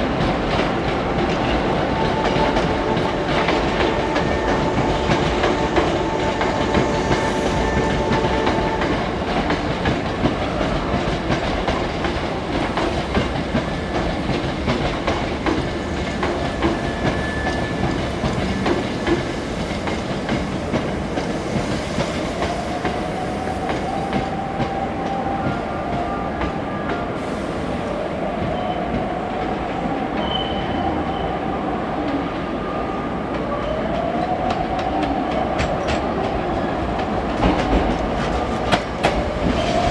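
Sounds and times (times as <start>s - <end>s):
train wheels clicking over rail joints: 0.0s - 24.8s, 34.5s - 39.9s
train rumble: 0.0s - 31.2s, 31.9s - 39.9s.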